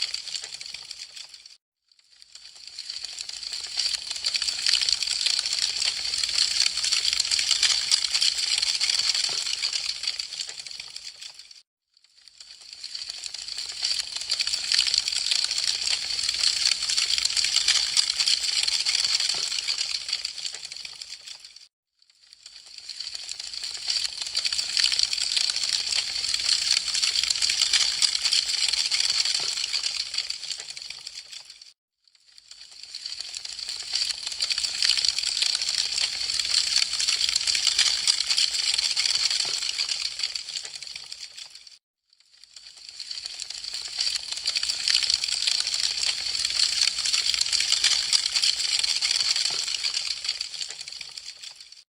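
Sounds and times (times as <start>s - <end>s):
wood fire crackling: 0.2s - 1.3s, 19.4s - 21.4s, 50.0s - 50.8s
burning wood crackling: 19.6s - 21.5s.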